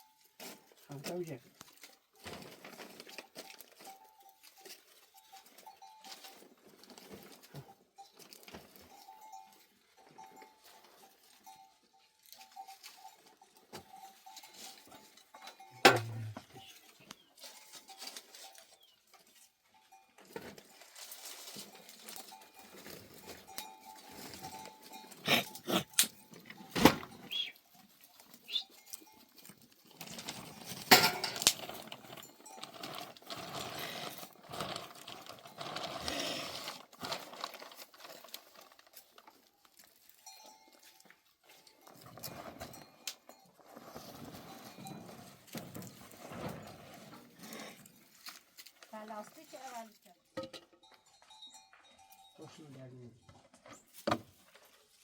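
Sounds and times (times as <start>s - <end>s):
rustling and scraping: 0.0s - 9.6s, 10.2s - 52.0s, 53.2s - 55.0s
sharp knocks and clatter: 15.8s - 16.6s, 30.3s - 31.9s.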